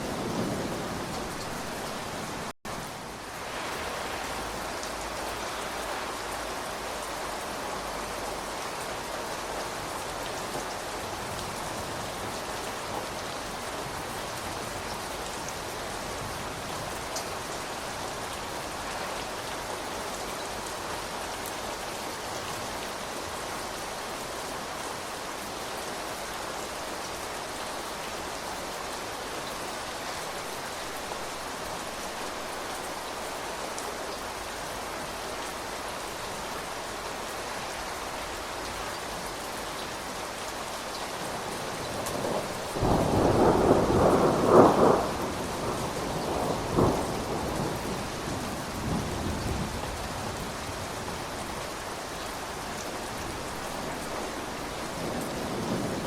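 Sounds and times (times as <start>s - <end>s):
steady rain: 0.0s - 56.0s
thunderclap rumbling: 42.1s - 49.8s.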